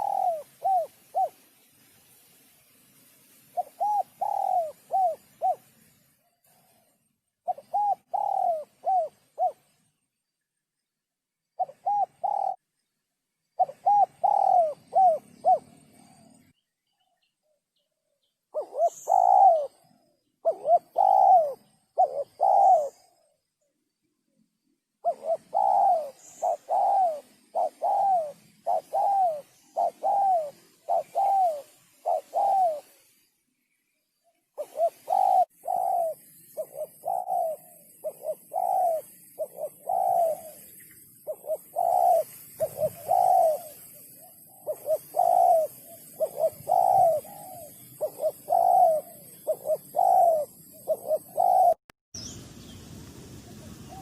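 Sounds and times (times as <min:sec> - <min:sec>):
dove cooing: 0:00.0 - 0:01.5, 0:03.5 - 0:05.9, 0:06.5 - 0:09.8, 0:11.6 - 0:12.7, 0:13.6 - 0:16.5, 0:18.5 - 0:23.4, 0:25.0 - 0:33.2, 0:34.6 - 0:51.8.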